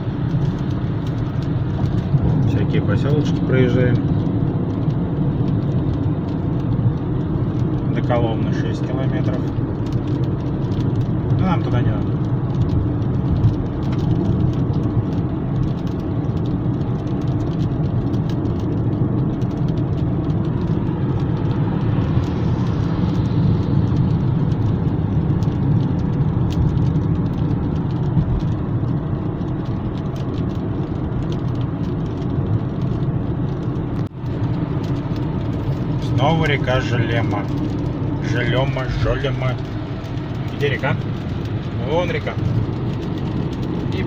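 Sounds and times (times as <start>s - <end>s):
car road noise: 0.0s - 44.0s.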